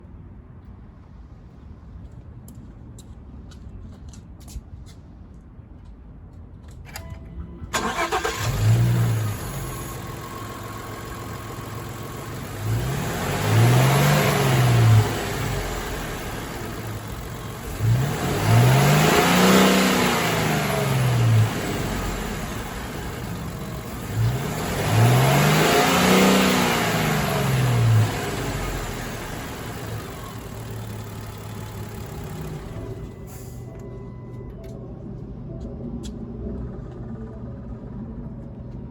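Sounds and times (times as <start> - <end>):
van engine starting and revving: 7.6 - 33.8.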